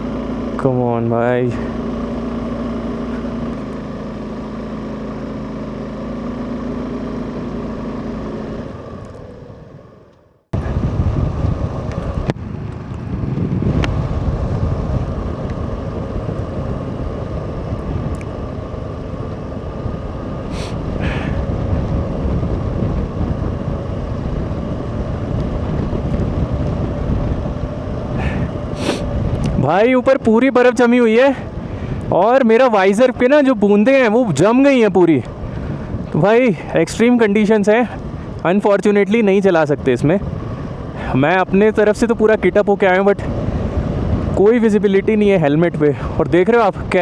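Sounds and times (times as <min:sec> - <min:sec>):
motorcycle engine running: 0:00.0 - 0:47.0
wind buffeting microphone: 0:10.5 - 0:47.0.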